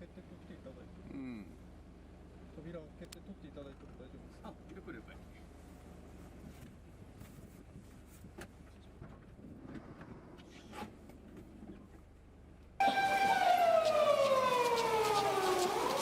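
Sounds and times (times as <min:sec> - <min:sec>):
wailing siren: 0:12.8 - 0:16.0.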